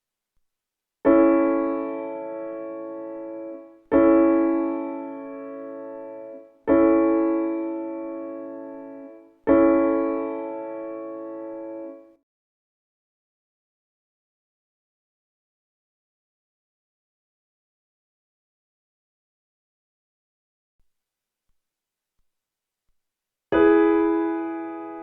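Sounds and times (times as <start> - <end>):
piano chords: 1.1 - 12.2, 23.5 - 25.0.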